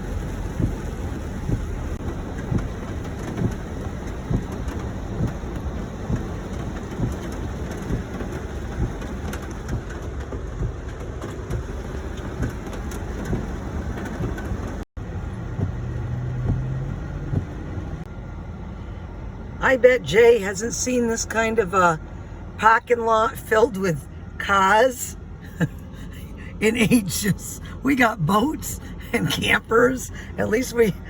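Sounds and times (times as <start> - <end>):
heavy rain: 0.0 - 18.1
thunder rumbles: 0.0 - 18.1.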